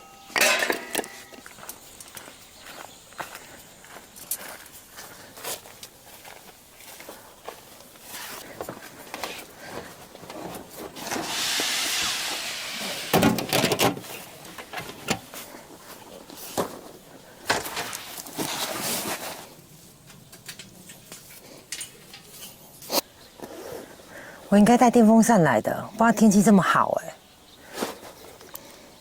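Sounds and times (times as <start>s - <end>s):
tent fabric rustling: 7.9s - 13.1s, 17.7s - 20.0s.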